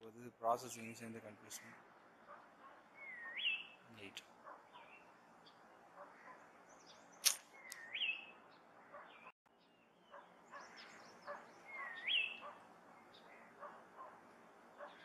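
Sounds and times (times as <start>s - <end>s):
soft bird chirps: 0.4s - 15.0s
bird whistled call: 3.0s - 3.8s, 7.5s - 8.4s, 11.6s - 12.5s
sharp click: 7.2s - 7.9s.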